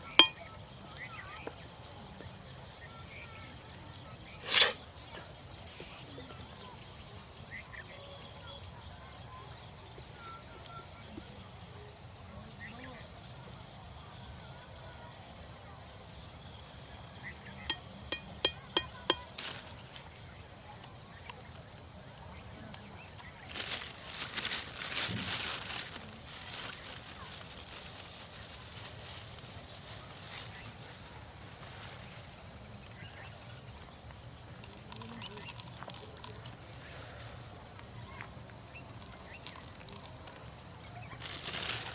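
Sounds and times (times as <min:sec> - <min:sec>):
high insect drone: 0:00.0 - 0:41.9
noisy rustling: 0:22.8 - 0:41.9.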